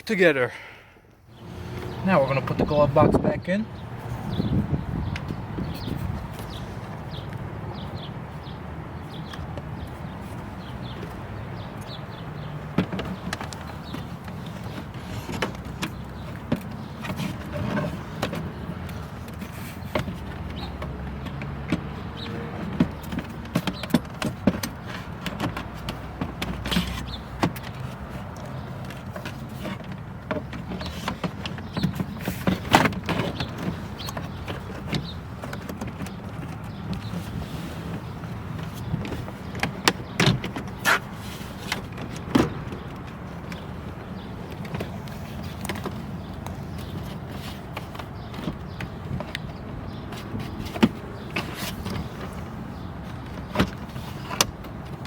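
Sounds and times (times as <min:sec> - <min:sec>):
hard plastic knocks and clicks: 0:12.7 - 0:55.0.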